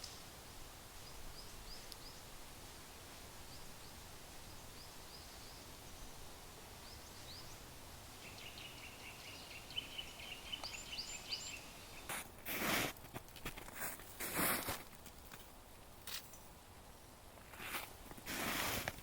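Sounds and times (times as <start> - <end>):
faint steady hiss: 0.0 - 19.0
small birds chirping: 1.0 - 2.4, 3.4 - 12.6.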